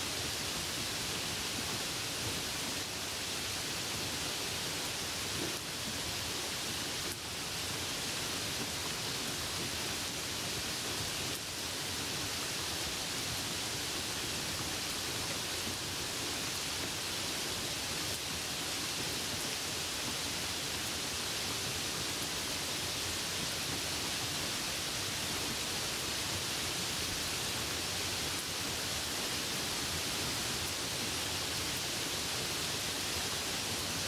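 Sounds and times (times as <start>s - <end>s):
steady rain falling: 0.0s - 34.0s.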